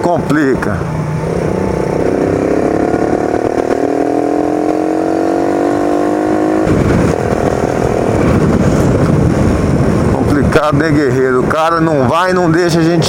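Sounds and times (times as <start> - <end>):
motorcycle engine accelerating: 0.0 - 10.6
steady rushing noise: 0.0 - 13.0.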